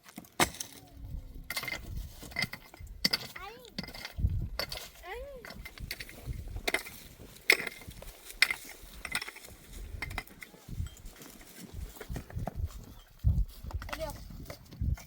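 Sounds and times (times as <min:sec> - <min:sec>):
low rumble: 0:01.0 - 0:03.1
sharp clinks and knocks: 0:01.5 - 0:11.1.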